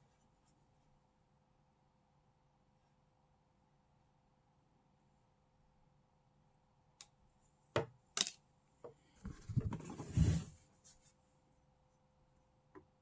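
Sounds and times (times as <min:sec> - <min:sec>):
small objects clicking and knocking: 0:08.2 - 0:08.4.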